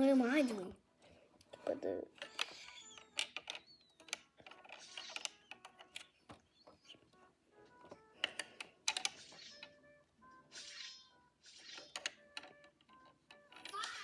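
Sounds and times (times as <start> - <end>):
plastic toy pieces clicking: 1.4 - 7.0, 7.9 - 9.8, 10.7 - 14.0.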